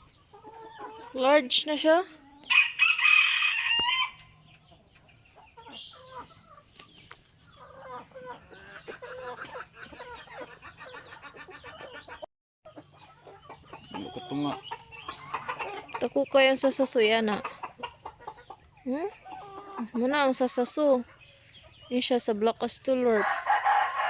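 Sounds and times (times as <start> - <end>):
hens clucking: 0.0 - 24.0
rooster crowing: 2.5 - 4.4, 23.2 - 24.0.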